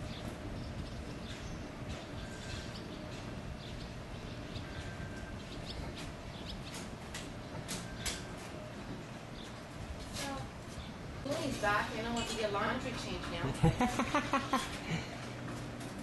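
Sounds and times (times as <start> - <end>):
small birds chirping: 0.0 - 11.3.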